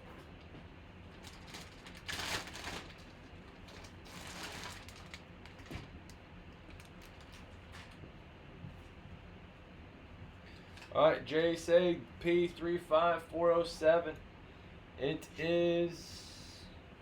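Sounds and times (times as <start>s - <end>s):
packaging rustling and crinkling: 1.1s - 8.0s.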